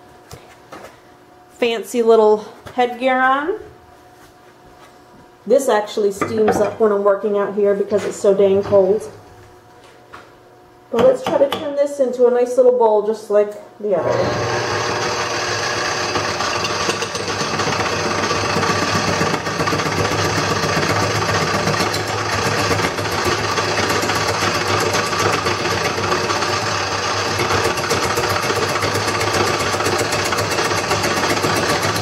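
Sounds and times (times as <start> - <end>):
wood lathe running: 14.0 - 32.0.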